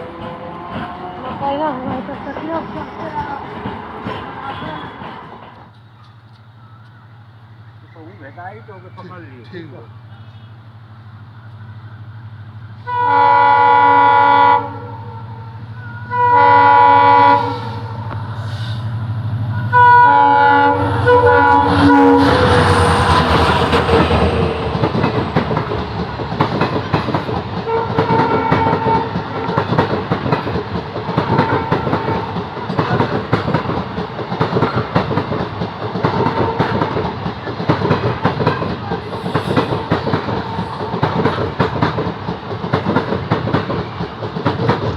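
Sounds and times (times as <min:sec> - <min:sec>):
wheels clacking over rail joints: 0:00.0 - 0:07.0, 0:24.7 - 0:44.9
train passing with loud rush: 0:00.0 - 0:44.9
train horn blasts: 0:12.8 - 0:18.1, 0:19.5 - 0:25.7, 0:27.6 - 0:29.8, 0:31.1 - 0:32.4.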